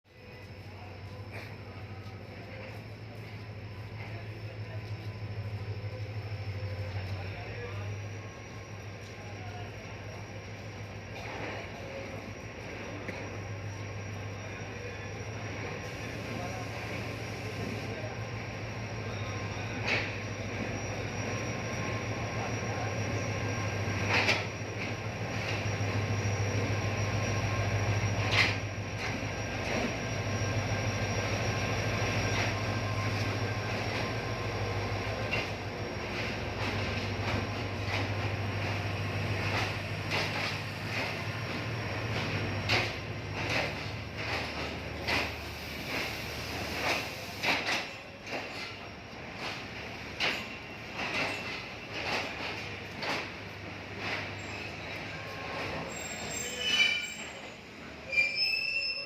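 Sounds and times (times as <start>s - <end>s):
locomotive engine hum: 0.2s - 56.6s.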